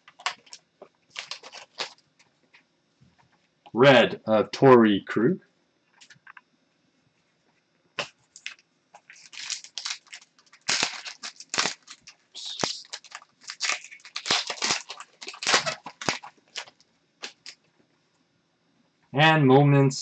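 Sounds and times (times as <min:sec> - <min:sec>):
cards scraping and crinkling: 0:00.0 - 0:02.0, 0:08.0 - 0:17.6.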